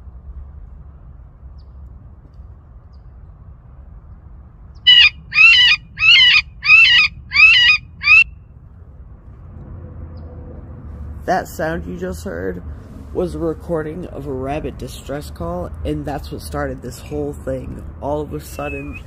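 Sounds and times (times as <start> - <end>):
rabbit squealing: 4.9 - 8.2.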